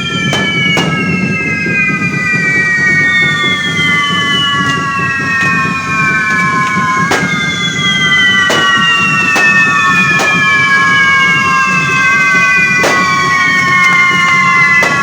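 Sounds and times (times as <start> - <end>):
fireworks cracking: 0.0 - 15.0
fireworks whistling: 0.0 - 15.0
steady rumble: 0.0 - 15.0.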